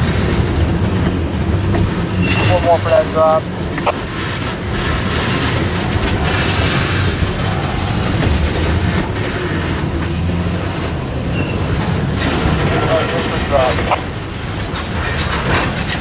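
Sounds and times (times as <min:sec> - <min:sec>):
diesel locomotive running under load: 0:00.0 - 0:16.0
freight cars rolling on rails: 0:00.0 - 0:16.0.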